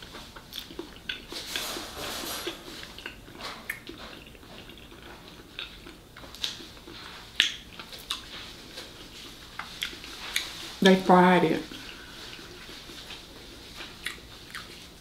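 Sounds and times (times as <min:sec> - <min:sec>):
crunchy chewing: 0:00.0 - 0:10.8, 0:11.7 - 0:15.0.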